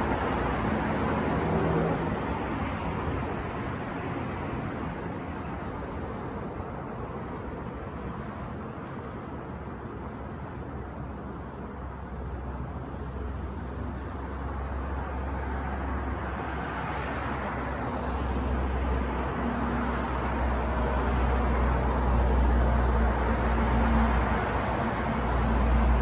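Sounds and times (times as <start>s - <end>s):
street traffic road noise: 0.0s - 26.0s
vehicle approaching: 20.4s - 26.0s.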